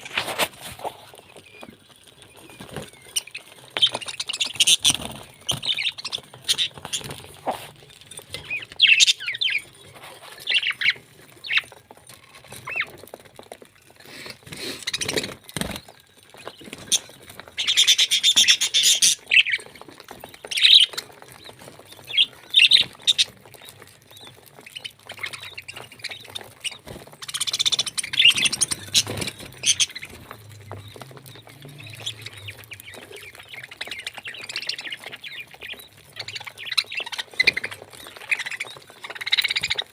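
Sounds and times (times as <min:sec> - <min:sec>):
parrot chirping and squawking: 0:08.4 - 0:09.7, 0:17.6 - 0:19.6, 0:24.8 - 0:39.8.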